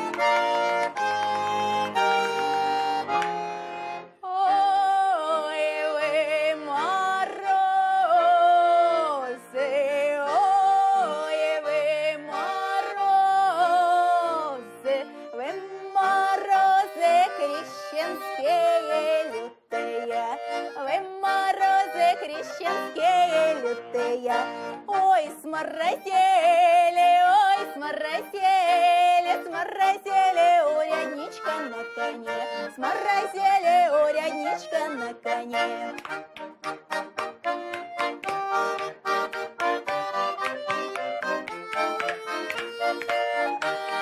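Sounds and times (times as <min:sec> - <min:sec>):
accordion chords: 0:00.0 - 0:44.0
woman singing with vibrato: 0:04.1 - 0:36.6.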